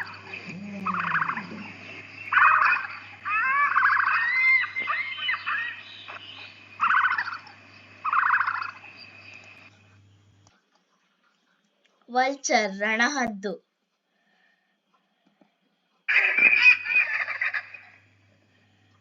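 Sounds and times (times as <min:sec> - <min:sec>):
large bird rattling calls: 0:00.0 - 0:09.0.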